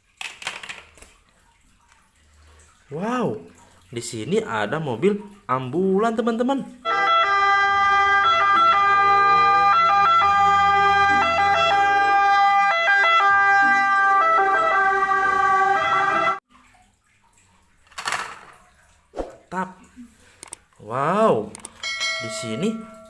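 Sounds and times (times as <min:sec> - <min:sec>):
toy electronic siren: 0:06.8 - 0:16.4.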